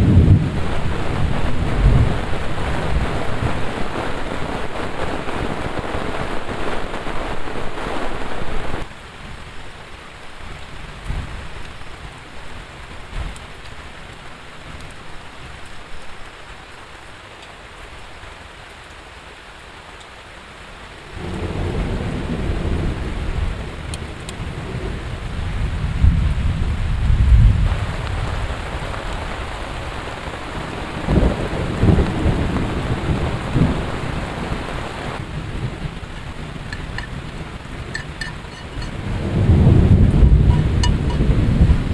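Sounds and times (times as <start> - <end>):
thunder rumbling: 0.0 - 8.9, 21.1 - 41.9
heavy rain falling: 0.0 - 41.9.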